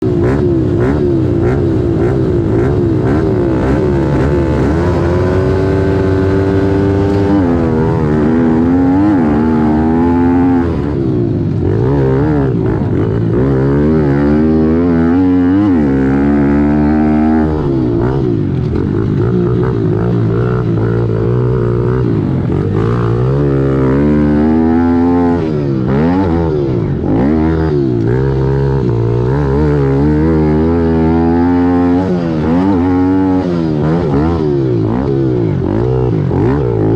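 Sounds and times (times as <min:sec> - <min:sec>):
pit bike engine revving: 0:00.0 - 0:36.9.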